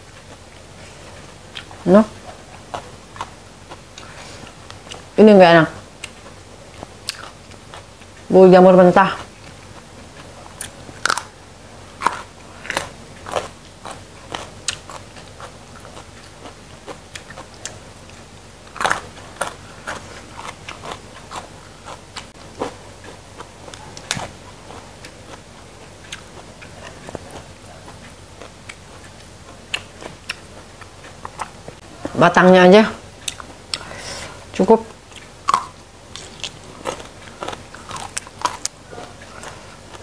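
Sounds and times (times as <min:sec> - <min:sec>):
crunching raw vegetables: 0:09.2 - 0:31.8, 0:35.1 - 0:40.0.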